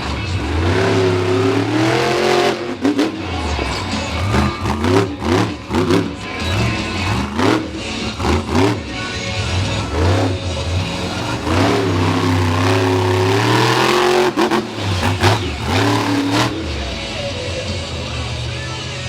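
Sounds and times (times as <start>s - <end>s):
truck engine revving: 0.0s - 19.0s.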